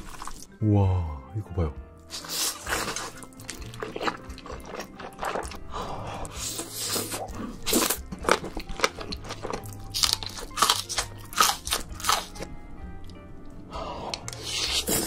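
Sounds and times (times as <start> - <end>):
background music: 0.0 - 15.0
crunching bites and chewing: 2.1 - 5.6, 6.2 - 12.5.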